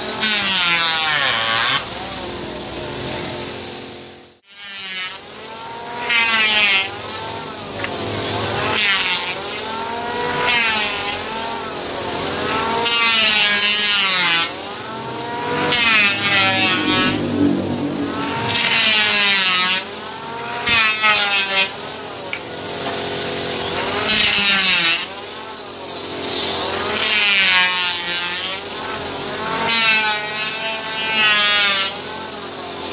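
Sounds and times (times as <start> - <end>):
electric hand planer planing wood: 0.0 - 32.9.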